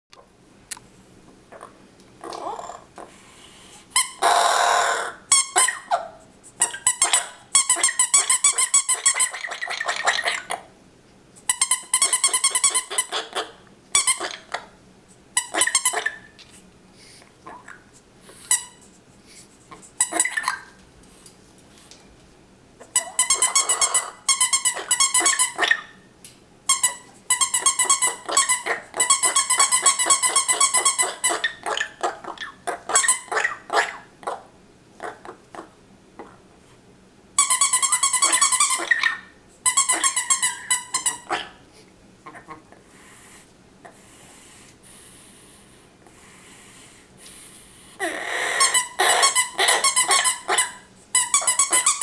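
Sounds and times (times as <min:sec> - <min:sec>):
parrot squeaking: 0:04.0 - 0:06.0, 0:06.6 - 0:10.5, 0:11.6 - 0:14.6, 0:15.4 - 0:16.2, 0:20.0 - 0:20.7, 0:22.8 - 0:26.0, 0:26.7 - 0:34.0, 0:37.4 - 0:41.4, 0:48.0 - 0:52.0
rubber squeak toy: 0:05.3 - 0:05.9, 0:22.8 - 0:25.8, 0:26.7 - 0:31.5, 0:37.4 - 0:39.1, 0:39.7 - 0:41.3, 0:48.4 - 0:52.0.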